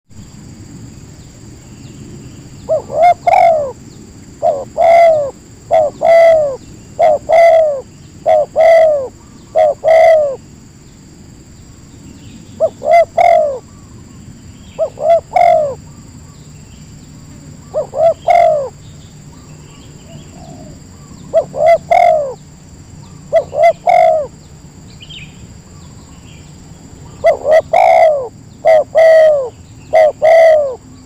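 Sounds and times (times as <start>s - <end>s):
dove cooing: 2.6s - 10.4s, 12.6s - 14.0s, 14.7s - 16.0s, 17.3s - 24.4s, 27.0s - 30.9s.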